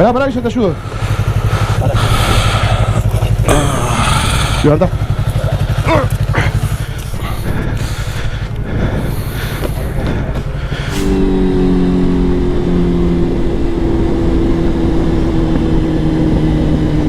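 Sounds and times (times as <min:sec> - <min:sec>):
motorcycle engine idling: 0:00.0 - 0:12.8
steady engine drone: 0:00.0 - 0:17.0.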